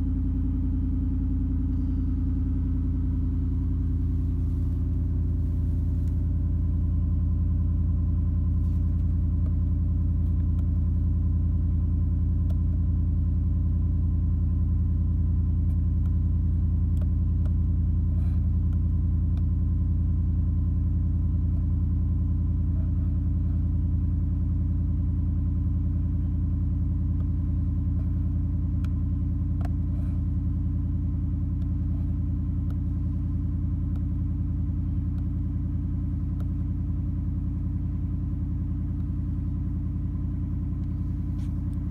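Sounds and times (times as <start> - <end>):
truck engine idling: 0.0 - 10.2, 27.4 - 41.9.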